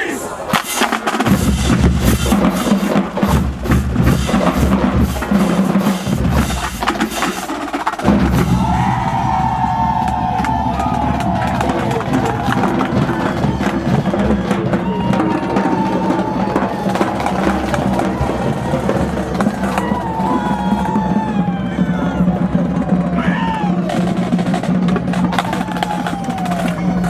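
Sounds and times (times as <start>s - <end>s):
snare drum strikes and rolls: 0.5s - 27.0s
bass drum hits: 8.0s - 13.2s.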